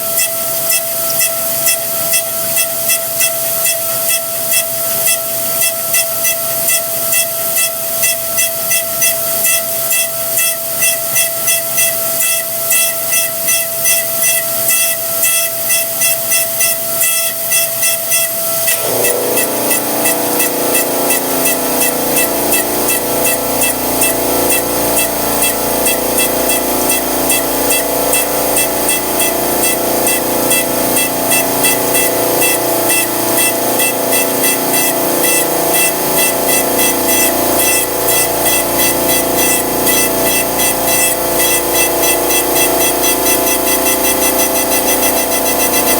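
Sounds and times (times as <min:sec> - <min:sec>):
milling machine whine: 0:18.4 - 0:45.9.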